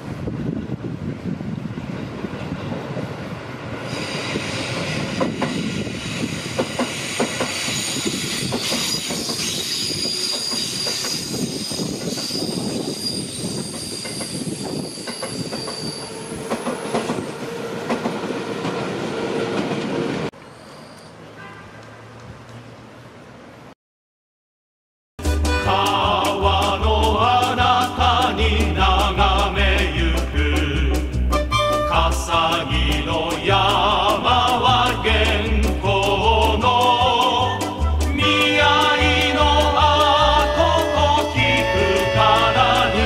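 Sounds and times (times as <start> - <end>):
train wheels rumbling on rail: 0.0 - 22.6, 25.3 - 43.0
rail-joint clicks: 3.9 - 12.7, 13.6 - 18.8
high-pitched wheel squeal: 7.0 - 17.4, 20.4 - 21.6.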